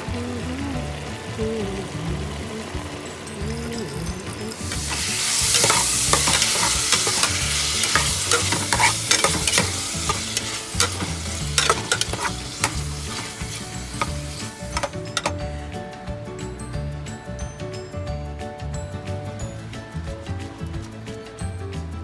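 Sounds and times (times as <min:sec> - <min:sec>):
water sizzling in hot pan: 0:00.4 - 0:15.3
metal ladle scraping pot: 0:04.7 - 0:15.4.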